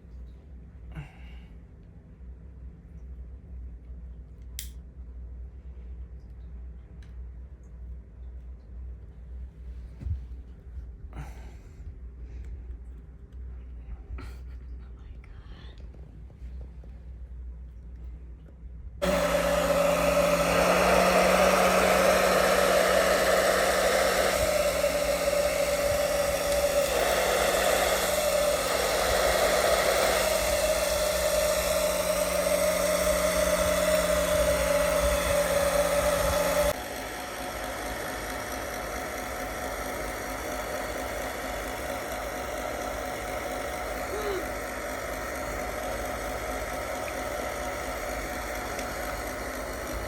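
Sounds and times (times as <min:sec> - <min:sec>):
hot-air blower whooshing hum: 0:09.6 - 0:12.6, 0:19.0 - 0:50.0.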